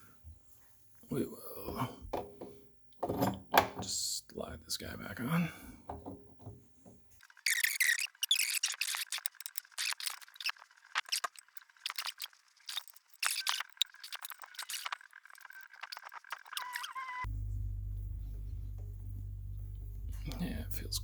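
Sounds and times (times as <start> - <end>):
steady low hum: 17.3 - 21.0.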